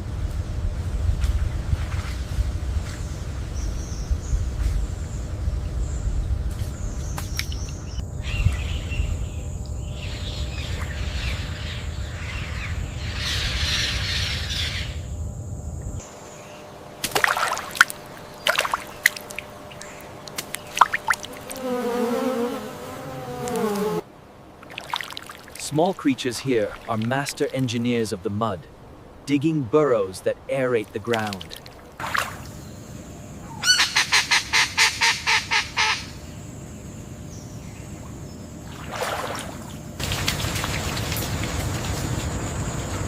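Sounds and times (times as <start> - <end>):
insect buzz: 2.1 - 25.6, 31.7 - 43.0
wavering pitched call: 33.4 - 36.1.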